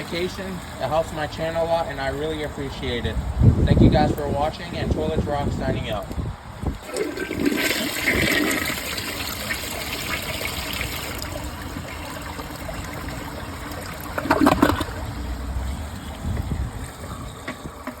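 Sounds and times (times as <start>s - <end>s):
toilet refilling with water: 6.7s - 16.2s.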